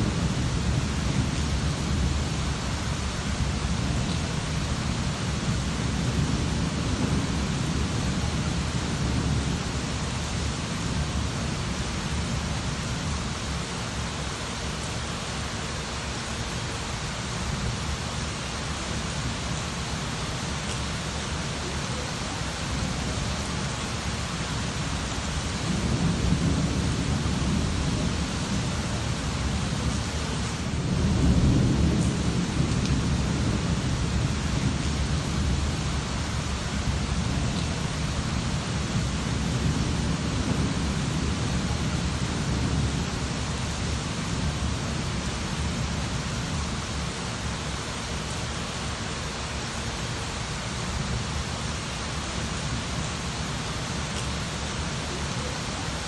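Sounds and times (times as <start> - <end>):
rolling thunder: 0.0 - 2.6, 3.2 - 13.2, 24.7 - 47.0
steady rain: 0.0 - 56.0.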